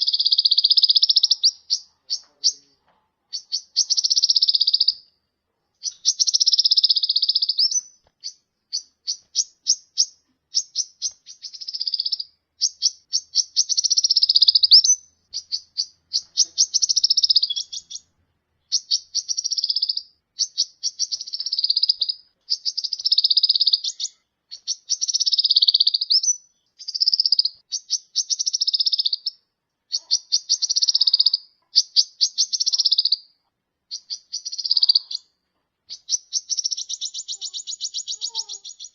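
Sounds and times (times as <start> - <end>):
sharp ticking bird notes: 0.0 - 5.2, 5.8 - 38.9
bird buzzy trills: 5.8 - 18.1, 35.9 - 38.9.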